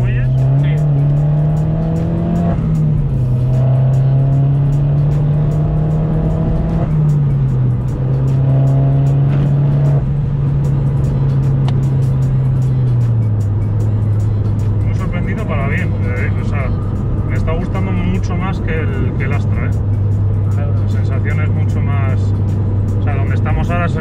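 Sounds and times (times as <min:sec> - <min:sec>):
background music: 0:00.0 - 0:24.0
car engine revving: 0:00.0 - 0:24.0.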